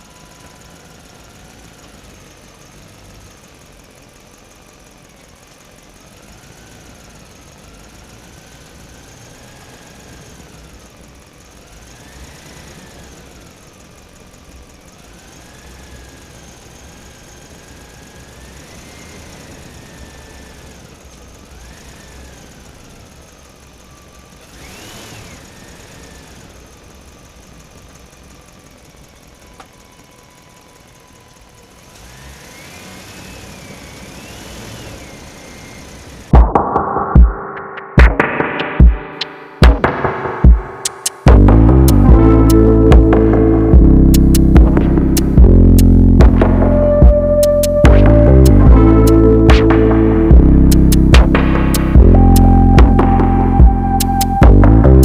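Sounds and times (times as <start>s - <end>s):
small electric motor whining: 6.0s - 36.3s.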